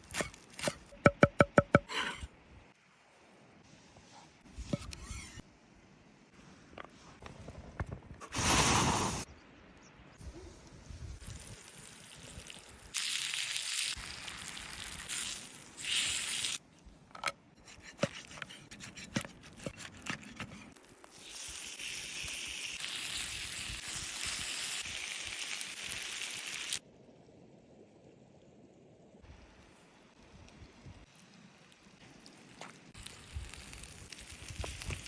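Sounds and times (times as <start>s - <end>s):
sharp knocks: 1.0s - 1.9s.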